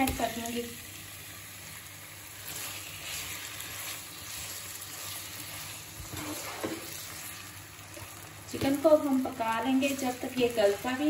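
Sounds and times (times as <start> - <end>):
chicken sizzling in frying pan: 0.0 - 11.0
spatula scraping pan: 2.4 - 7.4.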